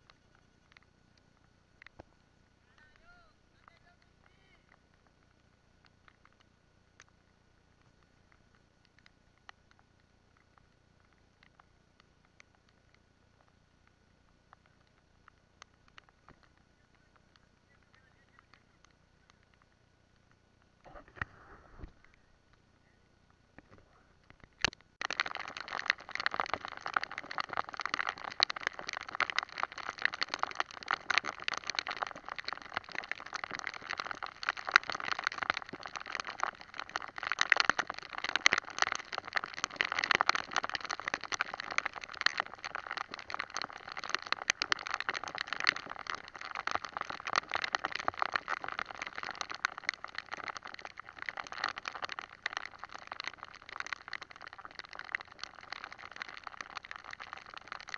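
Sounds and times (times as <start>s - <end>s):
heavy rain on a hard surface: 24.7s - 57.9s.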